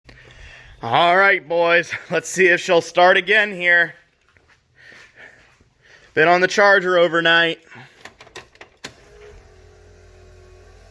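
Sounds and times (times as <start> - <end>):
man breathing softly: 0.1 - 0.8, 4.7 - 6.2.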